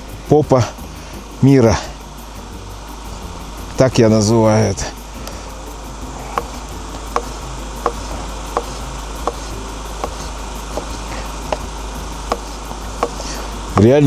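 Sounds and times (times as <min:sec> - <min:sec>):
steady rushing noise: 0:00.0 - 0:14.0
knife chopping on cutting board: 0:06.1 - 0:14.0.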